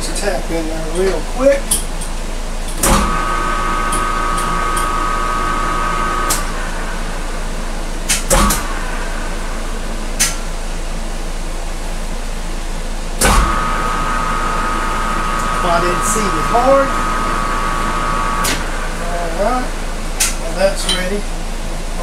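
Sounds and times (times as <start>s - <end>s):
lathe mechanical hum: 0.0s - 22.0s
lathe whine: 2.9s - 11.9s, 12.9s - 20.2s.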